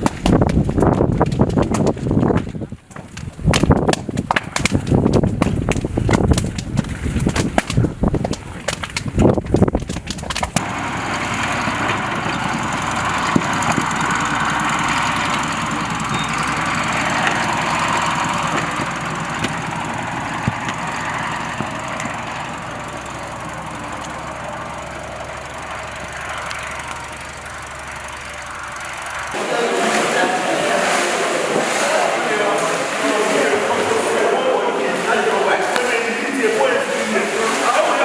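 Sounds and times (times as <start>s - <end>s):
engine running steadily: 0.0s - 38.0s
steady rushing noise: 27.0s - 38.0s.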